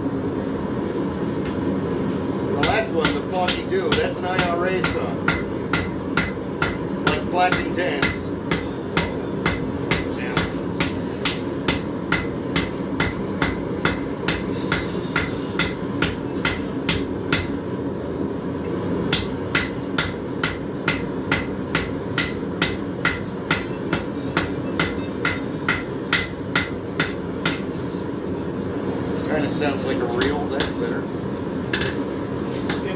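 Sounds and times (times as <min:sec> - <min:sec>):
hammer ringing on anvil: 0:02.6 - 0:17.6, 0:19.1 - 0:27.7.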